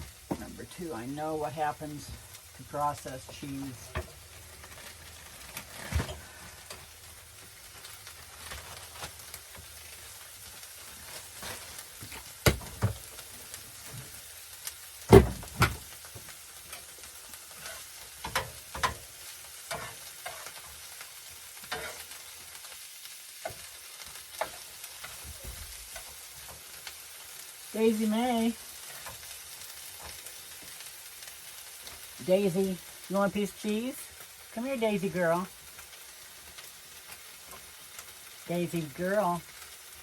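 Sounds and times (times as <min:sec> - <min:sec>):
vegetables sizzling in a skillet: 0:00.0 - 0:40.0
spatula scraping a pan: 0:17.5 - 0:21.0, 0:21.6 - 0:22.7.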